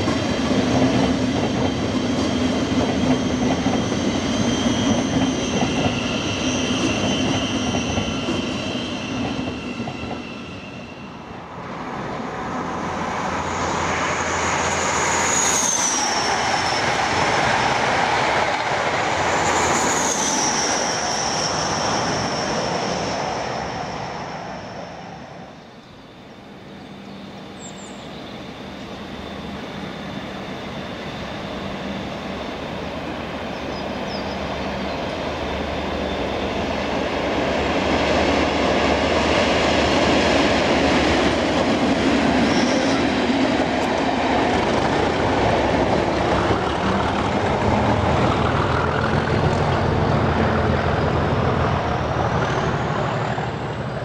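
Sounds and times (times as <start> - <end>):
low hum of approaching train: 0.0 - 54.0
train passing with whining tones: 0.0 - 54.0
train squeals dropping in pitch: 1.6 - 11.4, 14.1 - 17.8, 19.3 - 23.2, 24.6 - 32.8, 42.4 - 43.2.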